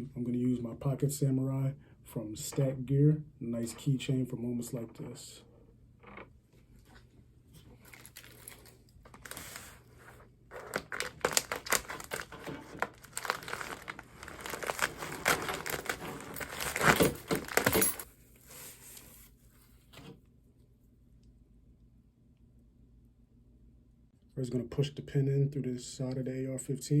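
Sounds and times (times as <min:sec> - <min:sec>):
packaging crinkling and tearing: 0:07.7 - 0:18.0.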